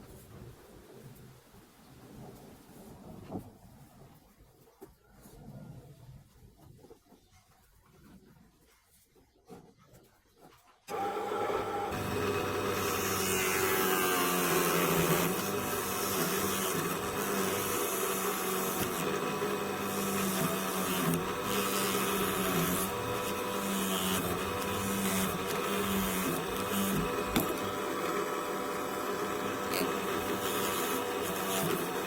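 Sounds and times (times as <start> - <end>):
small electric motor humming: 10.9 - 32.0.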